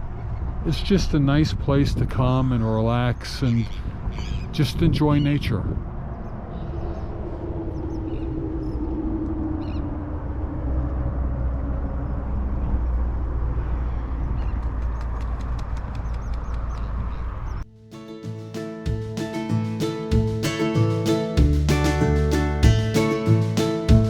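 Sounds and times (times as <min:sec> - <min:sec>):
low outdoor rumble: 0:00.0 - 0:17.7, 0:18.9 - 0:24.0
bird calls: 0:02.3 - 0:05.4, 0:06.1 - 0:09.9, 0:13.6 - 0:17.6.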